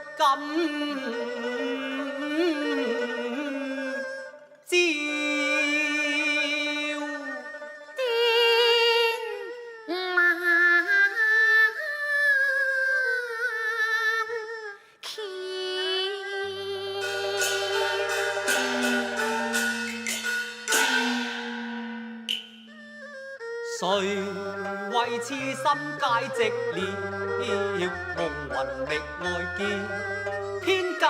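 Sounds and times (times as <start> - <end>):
opera voice singing with vibrato: 0.0 - 7.4, 15.1 - 20.1, 23.8 - 31.0
low accompanying tones: 16.4 - 23.2.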